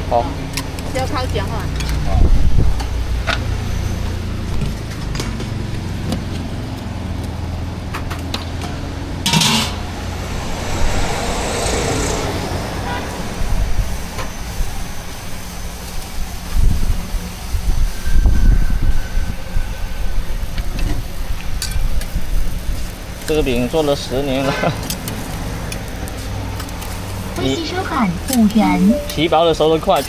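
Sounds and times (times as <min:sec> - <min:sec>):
low engine hum: 0:00.0 - 0:18.8
rushing noise: 0:08.7 - 0:22.8.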